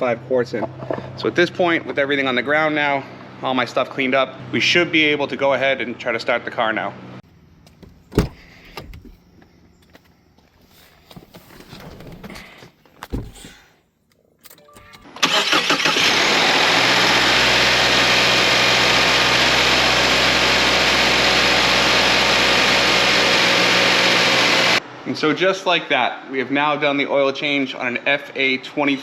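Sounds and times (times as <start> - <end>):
car engine starting and idling: 14.4 - 24.8.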